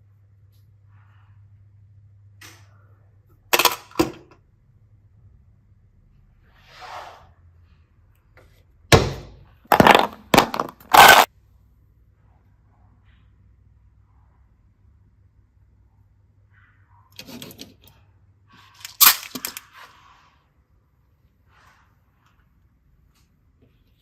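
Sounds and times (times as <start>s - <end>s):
hard objects knocking: 8.9s - 11.3s
knocks and clatters: 9.0s - 11.3s.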